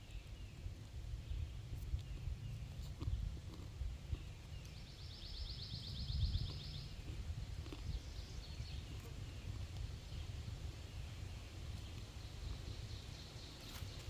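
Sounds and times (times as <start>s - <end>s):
bird chirps: 4.1s - 7.1s
songbird trilling: 4.2s - 7.0s.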